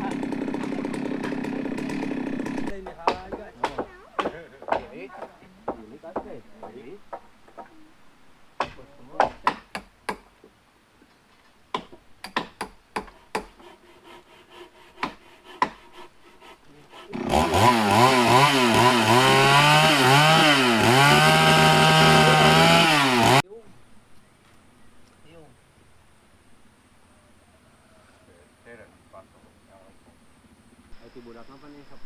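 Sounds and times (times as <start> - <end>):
chainsaw running: 0.0 - 4.4, 13.6 - 23.4
sharp knocks on wood: 2.8 - 7.7, 8.6 - 10.5, 11.7 - 13.6, 15.0 - 15.8.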